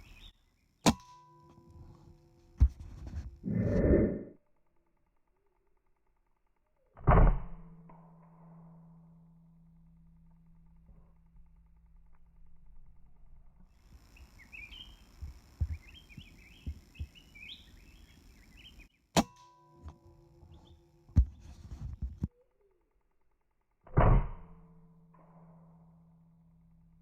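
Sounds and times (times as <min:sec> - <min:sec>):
small birds chirping: 0:00.0 - 0:00.8, 0:13.8 - 0:19.1, 0:20.4 - 0:21.5.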